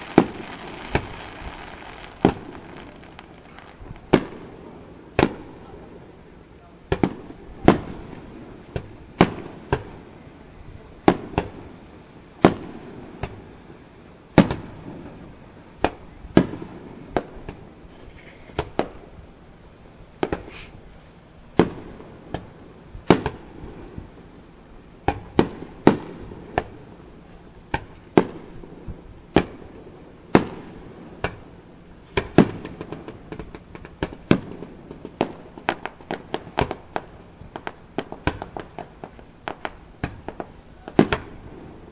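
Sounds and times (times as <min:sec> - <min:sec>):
firework shells bursting: 0:00.0 - 0:05.6, 0:32.1 - 0:41.9.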